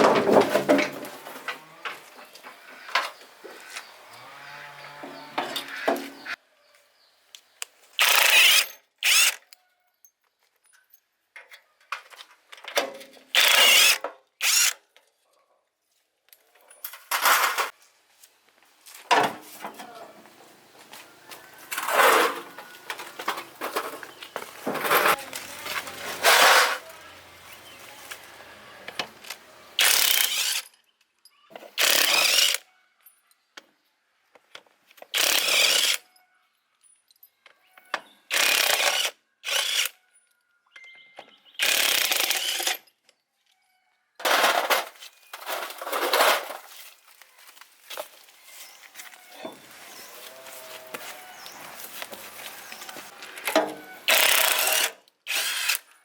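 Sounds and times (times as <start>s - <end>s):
power tool bursts: 8.0s - 9.4s, 13.4s - 14.8s, 29.8s - 30.6s, 53.5s - 55.9s
clinks of tools and parts: 8.0s - 14.2s, 16.3s - 17.9s, 21.6s - 26.8s, 36.1s - 38.2s, 40.0s - 41.5s, 52.8s - 54.9s.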